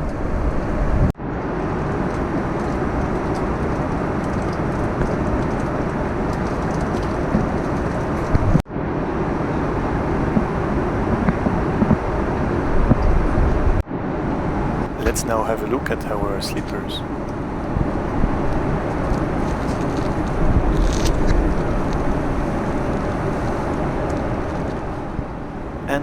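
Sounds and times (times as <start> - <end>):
airplane cabin engine rush: 14.9 - 17.0.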